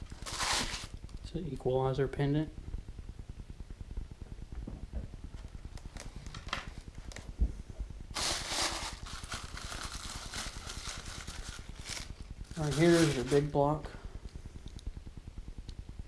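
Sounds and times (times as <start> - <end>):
plastic packaging rustling: 0.0 - 1.0, 8.2 - 13.7.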